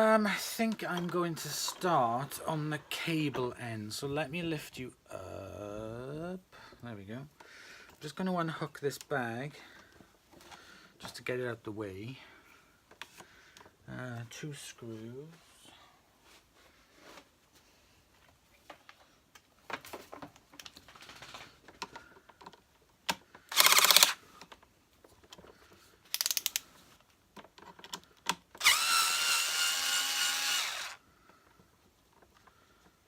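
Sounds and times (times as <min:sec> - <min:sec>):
parts clicking and knocking: 0:21.7 - 0:26.7
power screwdriver running: 0:23.5 - 0:24.2, 0:28.6 - 0:31.0.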